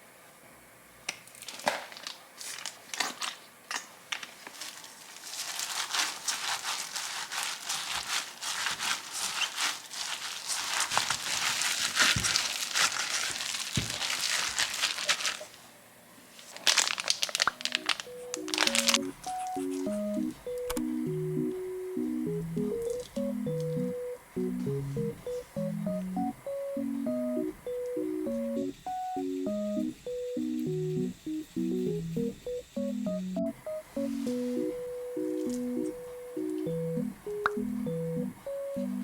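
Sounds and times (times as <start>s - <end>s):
wrapping crinkling and crackling: 1.2s - 20.8s, 22.0s - 23.8s.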